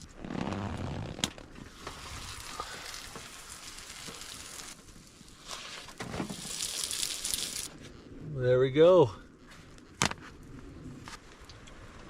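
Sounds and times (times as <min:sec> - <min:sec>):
food sizzling in a pan: 0:01.8 - 0:04.8, 0:06.3 - 0:07.7.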